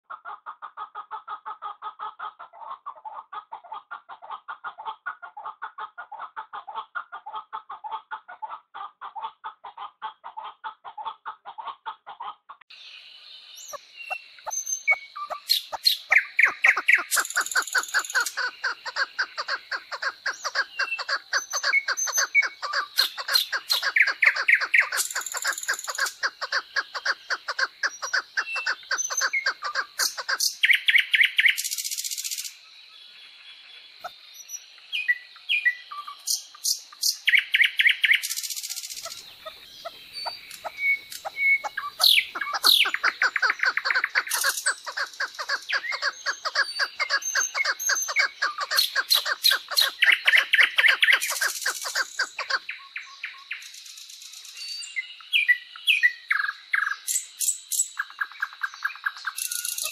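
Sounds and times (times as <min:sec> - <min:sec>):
bright bird chirps: 0:12.7 - 0:59.9
birds calling short notes: 0:34.0 - 0:53.6.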